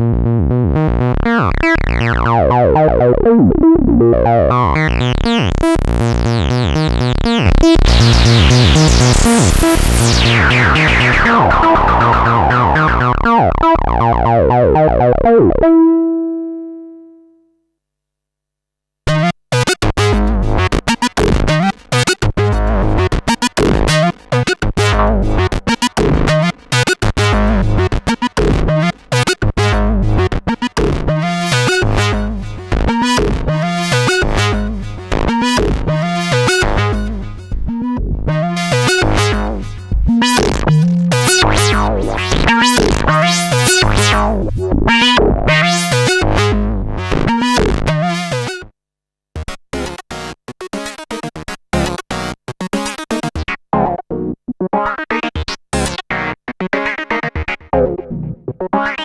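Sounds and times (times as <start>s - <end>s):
low synth bass notes: 0.0s - 17.2s, 19.8s - 48.6s
bright synthesizer notes: 7.0s - 17.4s, 22.5s - 46.6s.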